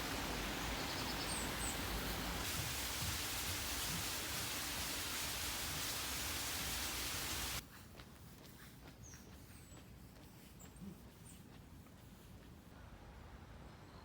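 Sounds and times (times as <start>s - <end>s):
steady rushing hiss: 0.0s - 8.8s
bird chirps: 0.1s - 2.0s.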